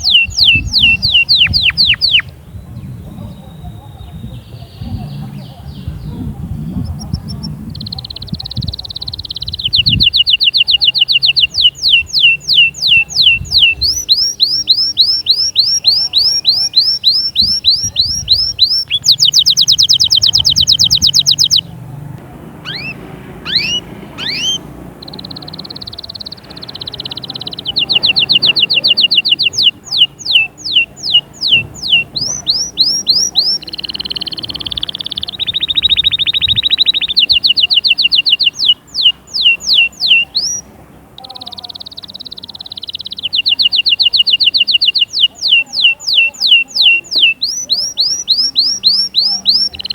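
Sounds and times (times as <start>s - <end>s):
canary singing trills: 0.0s - 49.9s.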